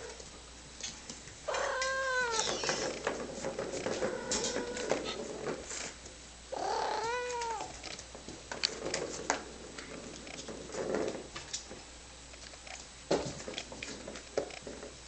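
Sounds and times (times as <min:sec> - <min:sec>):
cat meowing: 0:01.5 - 0:02.7, 0:06.5 - 0:07.7.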